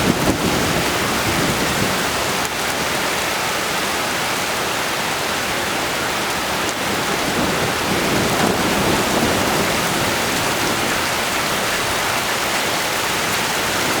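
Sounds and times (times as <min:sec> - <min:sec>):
thunder rumble: 0:00.0 - 0:03.3, 0:06.1 - 0:14.0
heavy rain pouring: 0:00.0 - 0:14.0.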